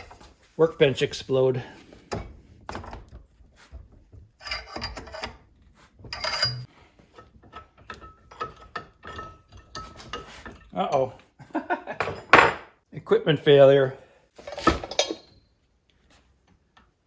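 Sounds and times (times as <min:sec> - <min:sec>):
metal scraping and rasping: 0:03.4 - 0:10.7.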